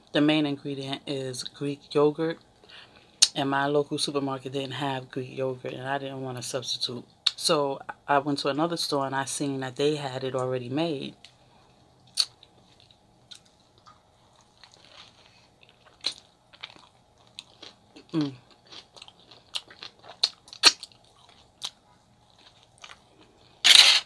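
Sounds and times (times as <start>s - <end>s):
wet chewing clicks and smacks: 12.0s - 23.0s.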